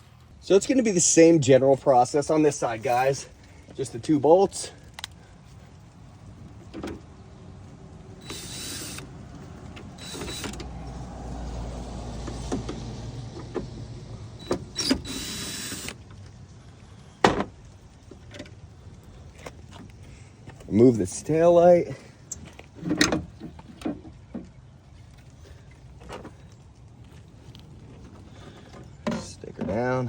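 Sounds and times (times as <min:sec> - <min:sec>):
cordless drill whirring: 0:08.2 - 0:09.1, 0:10.0 - 0:10.6, 0:14.4 - 0:16.0.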